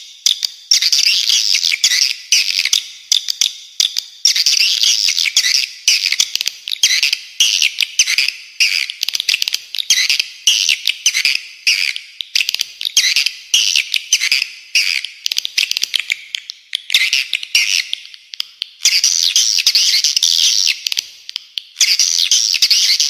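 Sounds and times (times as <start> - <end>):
bird song chattering: 3.8 - 20.8.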